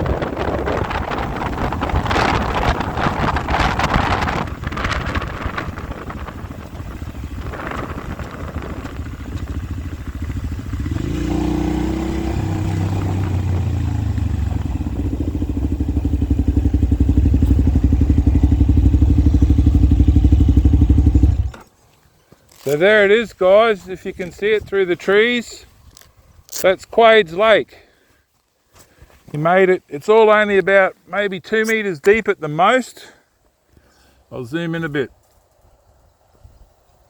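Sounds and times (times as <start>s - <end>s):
wind noise on microphone: 0.0s - 21.6s, 35.5s - 37.0s
motorcycle engine running: 0.0s - 21.7s.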